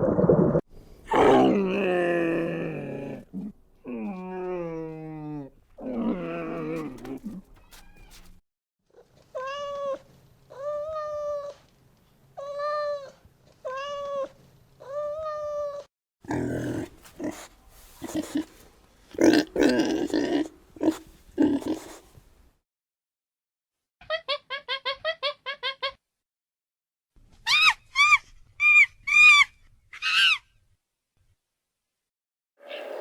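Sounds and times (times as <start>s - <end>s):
animal calls: 16.3s - 18.6s.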